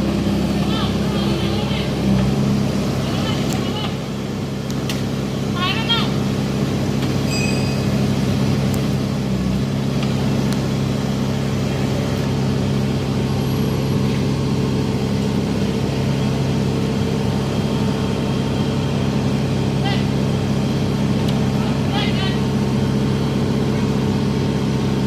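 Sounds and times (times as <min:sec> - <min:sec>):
heavy engine humming: 0:00.0 - 0:25.0.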